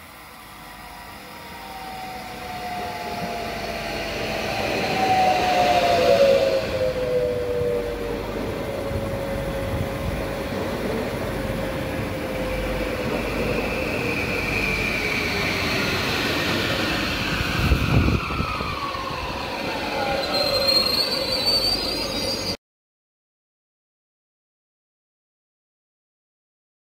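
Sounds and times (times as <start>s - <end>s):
train wheel rumble: 0.0s - 22.6s
whining tones dropping in pitch: 0.3s - 22.6s
brief high squeal: 17.2s - 22.6s.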